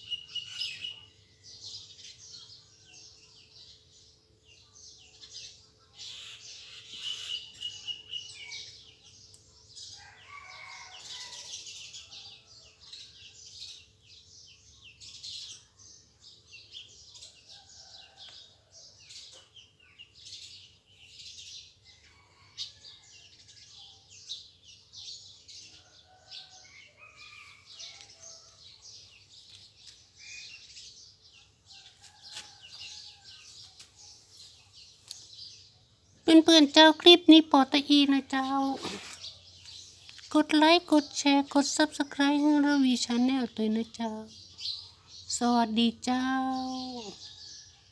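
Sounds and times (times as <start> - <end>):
birds chirping and calling: 0.0 - 1.1, 5.1 - 9.2, 25.0 - 47.7.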